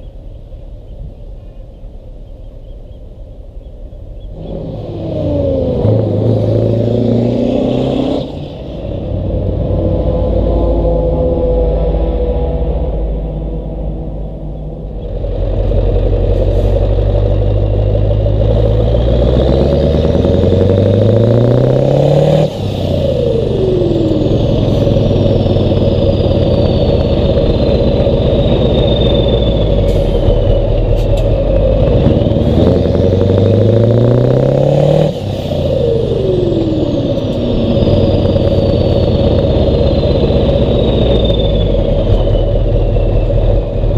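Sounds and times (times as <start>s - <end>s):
diesel truck engine revving: 4.2s - 43.9s
turbo whistle winding down: 23.0s - 31.0s, 35.8s - 43.9s.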